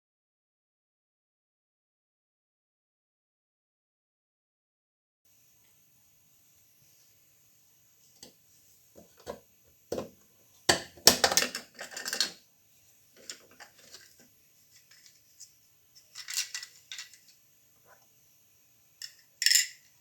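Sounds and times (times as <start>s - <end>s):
metal tools clinking: 16.1s - 17.3s, 19.0s - 19.9s.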